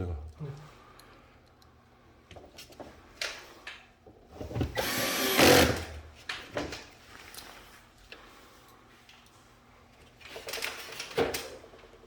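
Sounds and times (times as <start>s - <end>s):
cordless screwdriver driving screw: 4.8s - 5.9s.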